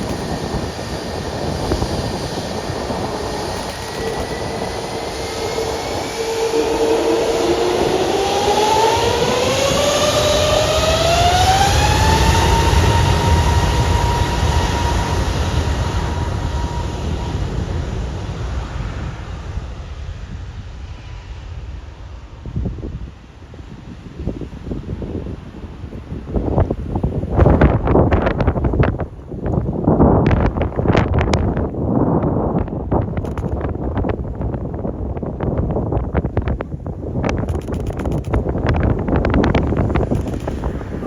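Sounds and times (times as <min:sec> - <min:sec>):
jet engines spooling up: 0:00.0 - 0:31.8, 0:32.6 - 0:34.1, 0:36.5 - 0:41.0.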